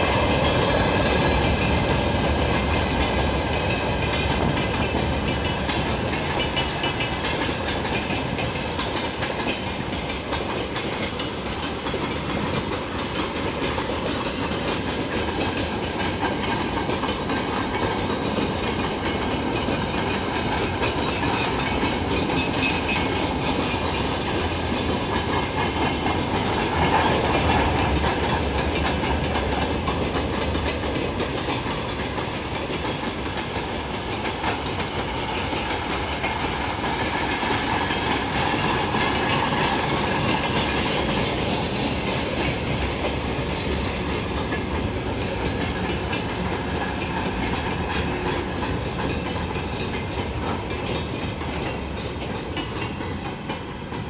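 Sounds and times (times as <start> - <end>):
train wheels clattering over rails: 0.0 - 54.0.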